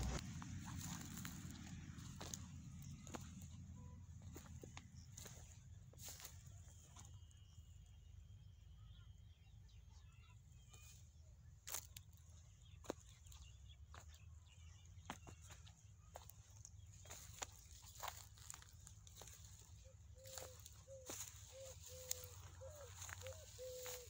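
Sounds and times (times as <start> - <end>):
low rumble: 0.0 - 5.1.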